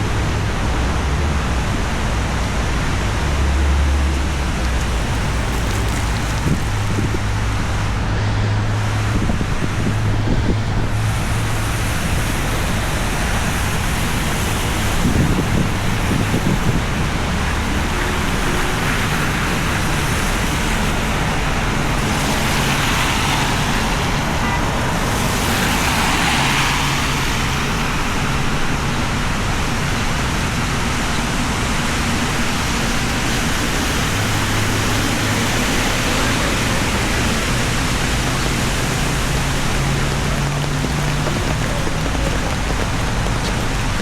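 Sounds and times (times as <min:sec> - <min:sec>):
rain falling: 0:02.2 - 0:07.9, 0:08.8 - 0:44.0
low engine hum: 0:24.9 - 0:44.0
vehicle hissing past on wet road: 0:25.0 - 0:28.4.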